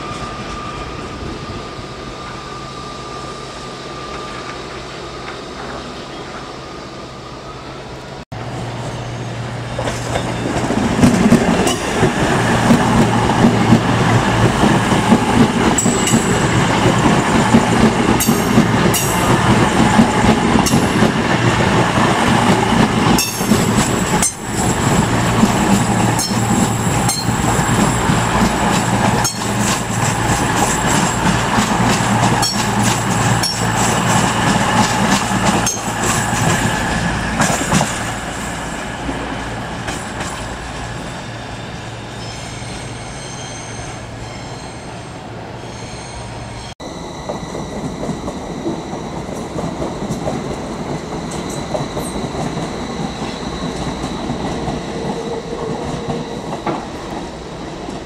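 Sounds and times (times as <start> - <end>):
high-pitched wheel squeal: 40.2 - 49.2.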